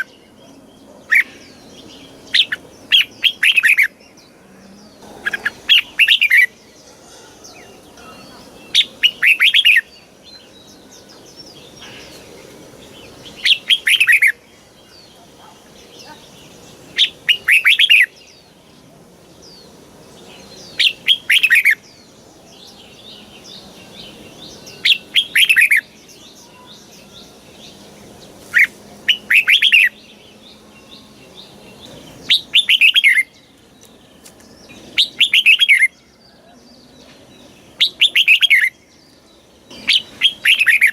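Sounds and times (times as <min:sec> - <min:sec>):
faint bird chatter: 0:00.0 - 0:40.9
bird singing clear notes: 0:19.4 - 0:40.9.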